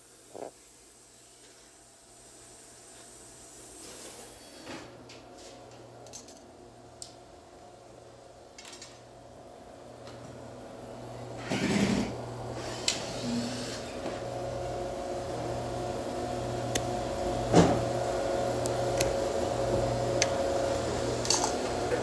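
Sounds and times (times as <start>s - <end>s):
low mechanical hum: 0.0s - 22.0s
clicks and knocks of parts handled: 5.7s - 7.2s, 8.6s - 9.0s.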